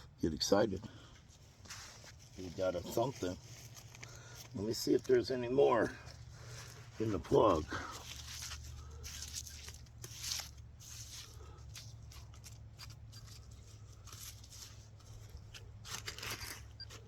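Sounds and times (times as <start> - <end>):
wet soil crumbling in hands: 2.4 - 16.5.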